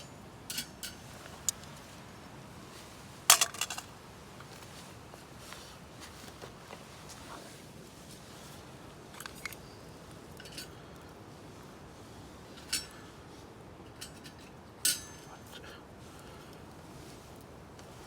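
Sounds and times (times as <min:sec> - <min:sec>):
metallic clinks of cookware: 0:00.0 - 0:01.1, 0:12.6 - 0:13.1, 0:13.9 - 0:15.4.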